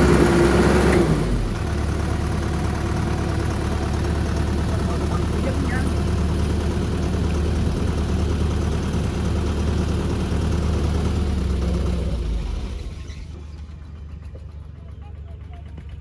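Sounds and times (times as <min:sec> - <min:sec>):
construction machine diesel engine: 0:00.0 - 0:16.0.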